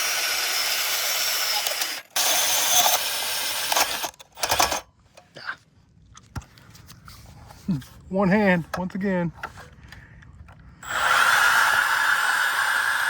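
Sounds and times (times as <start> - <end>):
power tool grinding: 0.0 - 4.8, 10.8 - 13.0.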